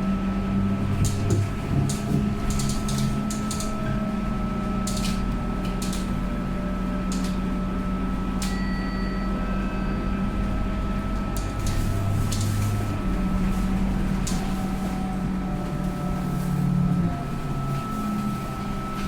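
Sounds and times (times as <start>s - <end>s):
rattles and clicks in bus: 0.0s - 19.0s
bus engine running: 9.4s - 19.0s.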